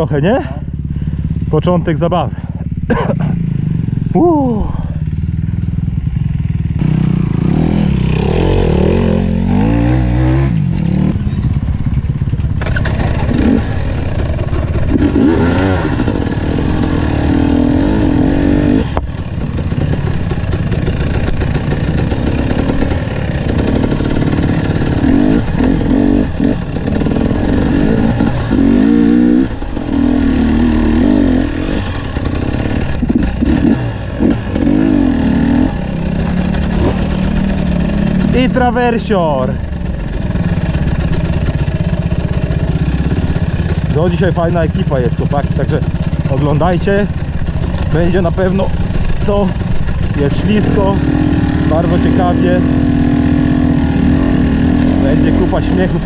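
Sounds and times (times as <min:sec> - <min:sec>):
motorcycle engine revving: 0:00.0 - 0:56.0
knocks and clatters: 0:18.8 - 0:29.9, 0:36.0 - 0:38.6, 0:47.1 - 0:50.9.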